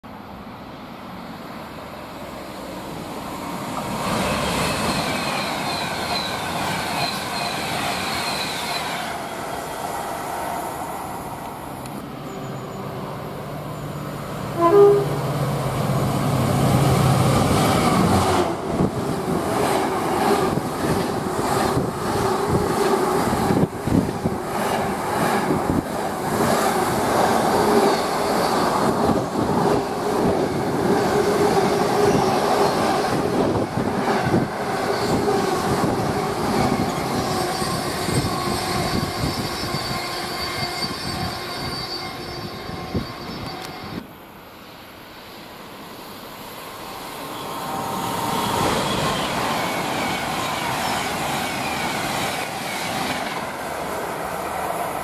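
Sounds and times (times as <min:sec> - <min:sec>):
rails humming: 0:00.1 - 0:55.0
train horn blast: 0:14.5 - 0:15.4.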